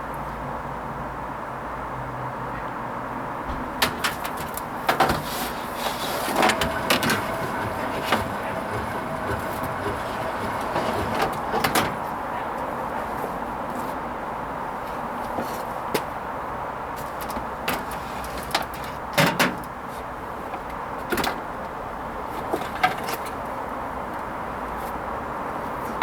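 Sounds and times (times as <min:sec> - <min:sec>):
washing machine running: 0:03.6 - 0:13.1
drum clicks and knocks: 0:06.3 - 0:12.1.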